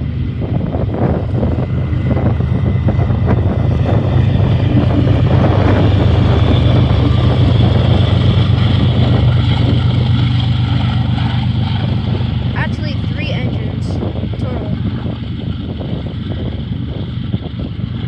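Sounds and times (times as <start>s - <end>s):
diesel locomotive engine drone: 0.0s - 18.0s.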